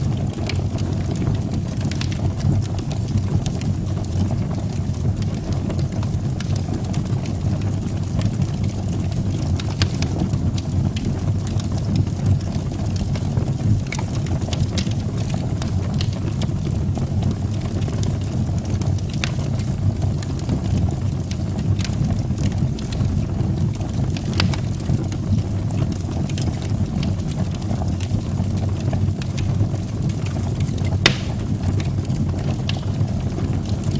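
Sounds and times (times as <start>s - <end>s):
burning wood crackling and popping: 0.0s - 33.9s
low rumble of flames: 0.0s - 33.9s.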